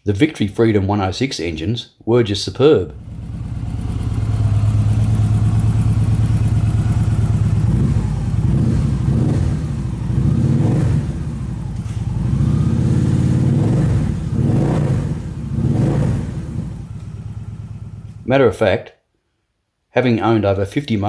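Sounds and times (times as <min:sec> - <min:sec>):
motorcycle engine revving: 0:02.9 - 0:18.3.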